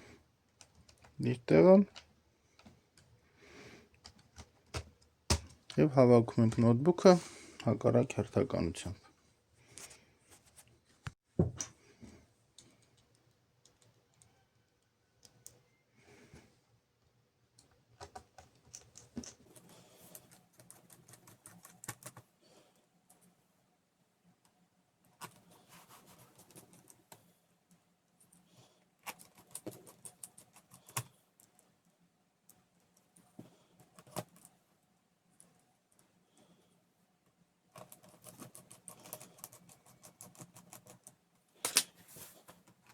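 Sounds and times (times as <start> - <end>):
laptop parts clicking and tapping: 4.0 - 5.8, 17.6 - 19.5.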